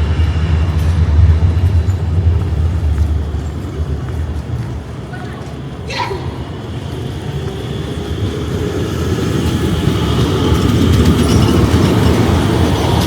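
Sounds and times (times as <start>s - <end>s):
tram rumbling on rails: 0.0s - 13.0s.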